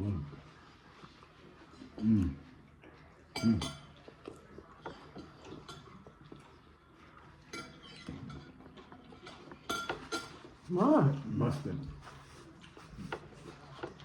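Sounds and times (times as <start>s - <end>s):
cutlery and dishes clinking: 3.3s - 6.6s, 7.4s - 10.7s.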